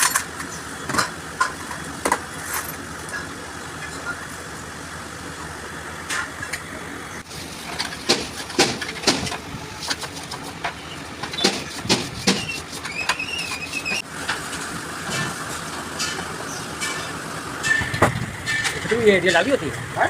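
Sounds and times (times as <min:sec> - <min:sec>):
steady background hum: 0:00.0 - 0:20.0
sharp clicks and knocks: 0:07.7 - 0:14.5.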